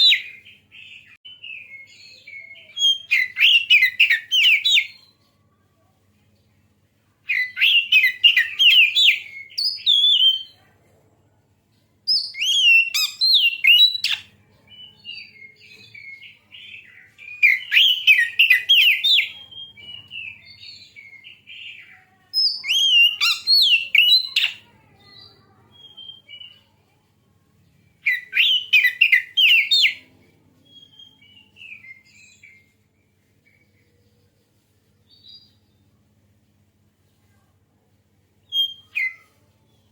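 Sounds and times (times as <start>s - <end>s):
bird singing: 0.0s - 5.2s, 7.3s - 10.6s, 12.1s - 26.7s, 27.8s - 30.0s.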